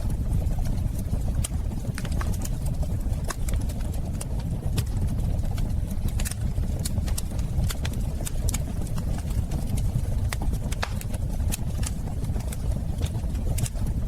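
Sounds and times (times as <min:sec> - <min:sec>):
fireplace fire crackling: 0:00.0 - 0:14.0.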